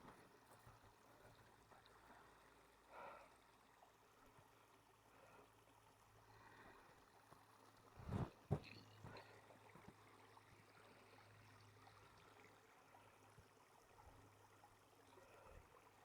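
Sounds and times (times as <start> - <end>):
faint outdoor hiss: 0.0 - 16.0
soft rustle: 8.0 - 9.2.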